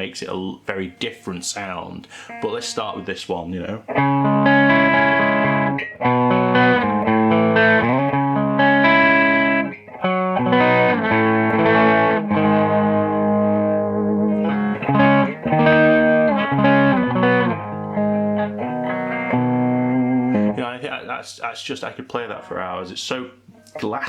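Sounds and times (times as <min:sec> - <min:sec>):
electric guitar chords and notes: 0:02.1 - 0:03.0, 0:03.9 - 0:20.6.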